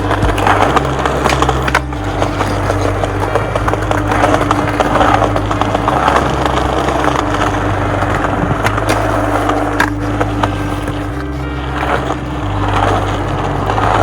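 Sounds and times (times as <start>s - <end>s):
music with stepping bass line: 0.0s - 14.0s
skateboard clacks: 0.0s - 14.0s
skateboard wheels rolling on pavement: 0.0s - 14.0s.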